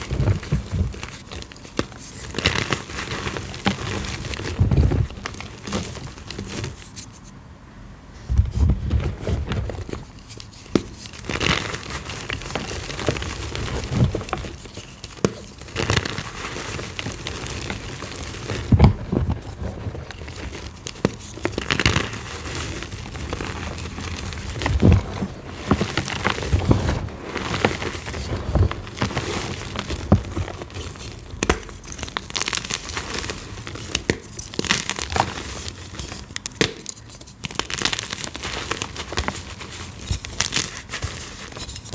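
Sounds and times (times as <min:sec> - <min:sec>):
chalk crunching and cracking: 0:08.9 - 0:41.9.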